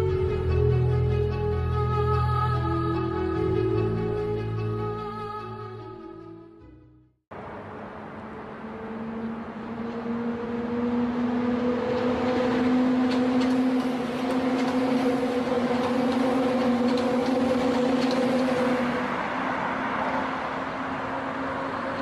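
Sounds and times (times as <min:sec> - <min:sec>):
high-speed train running: 0:07.3 - 0:22.0.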